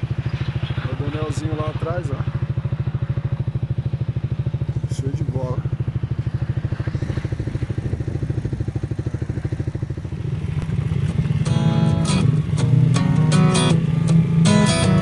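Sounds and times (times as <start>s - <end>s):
motorcycle engine running: 0.0s - 15.0s
strummed acoustic guitar music: 11.4s - 15.0s.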